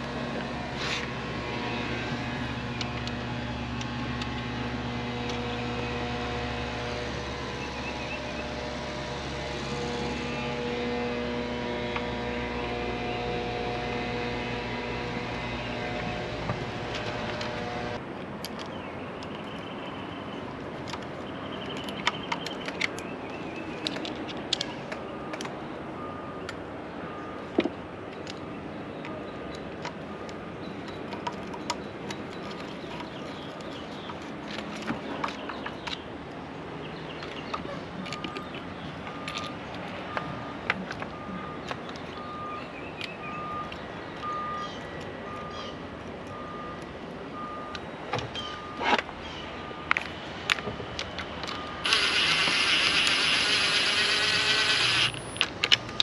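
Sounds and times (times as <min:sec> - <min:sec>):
small clicks of parts handled: 0:18.4 - 0:19.6, 0:37.2 - 0:42.2.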